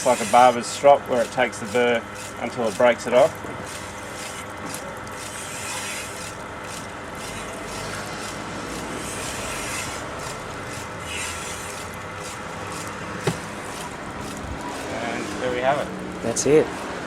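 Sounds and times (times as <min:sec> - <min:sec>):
knife rubbing on polishing wheel: 0:00.0 - 0:02.8, 0:03.7 - 0:08.3, 0:09.0 - 0:12.9
machine motor hum: 0:11.8 - 0:17.0.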